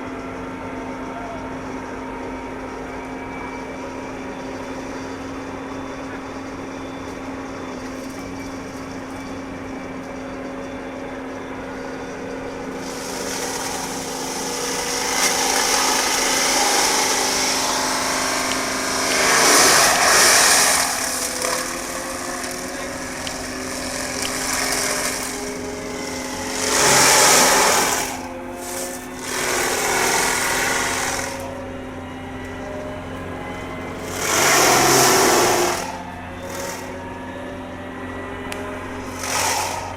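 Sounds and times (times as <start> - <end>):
excavator engine running: 0.0 - 39.9
loud rushing bursts: 12.8 - 31.5.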